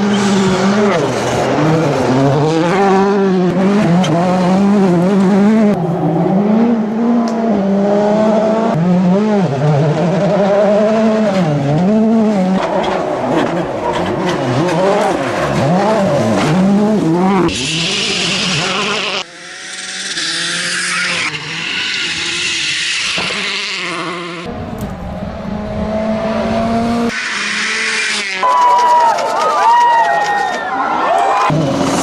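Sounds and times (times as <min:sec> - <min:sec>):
rally car engine revving: 0:00.0 - 0:29.1, 0:31.5 - 0:32.0
tyres on gravel: 0:11.4 - 0:17.5.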